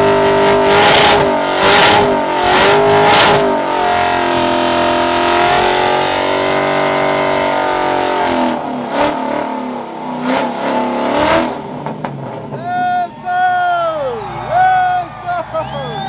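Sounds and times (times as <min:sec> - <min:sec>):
car engine revving hard: 0:00.0 - 0:12.8.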